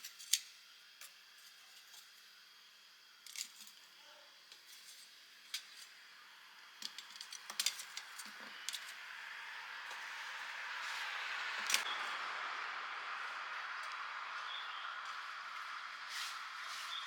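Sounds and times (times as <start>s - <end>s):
light metallic clicks and clinks: 6.8s - 9.0s.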